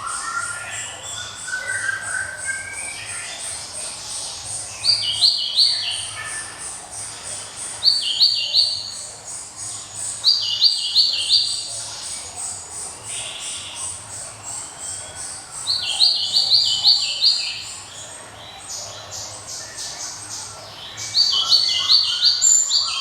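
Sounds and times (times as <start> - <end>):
songbird whistled phrases: 0.0 - 3.2
faint high chirping: 0.0 - 23.0
soft bird twittering: 0.0 - 23.0.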